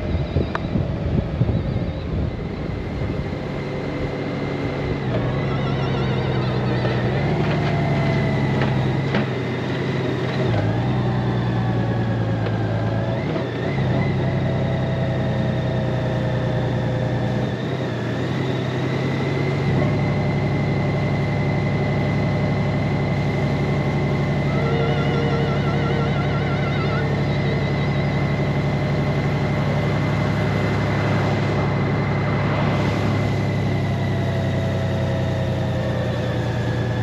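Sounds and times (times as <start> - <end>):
road and wind rush: 0.0 - 37.0
motorcycle engine running: 13.9 - 37.0.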